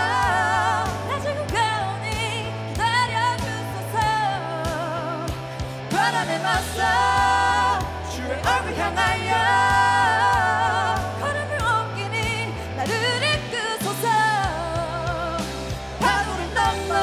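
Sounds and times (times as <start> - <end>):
band with bass line: 0.0 - 17.0.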